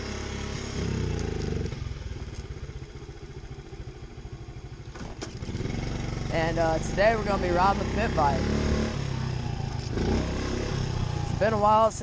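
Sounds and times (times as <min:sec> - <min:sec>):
small motorbike engine puttering: 0:00.1 - 0:02.8, 0:04.6 - 0:06.0.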